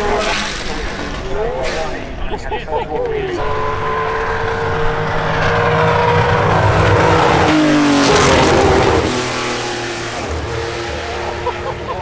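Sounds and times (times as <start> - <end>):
car accelerating past: 3.0 - 12.0.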